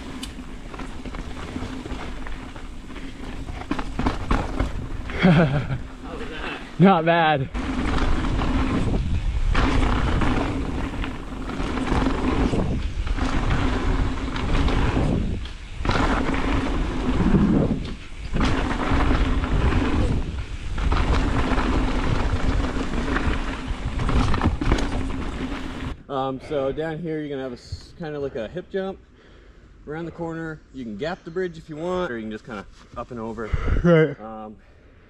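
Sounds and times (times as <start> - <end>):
bike tyre and frame noise: 0.0 - 28.5, 29.1 - 35.0
wind rumbling over microphone: 7.4 - 26.0.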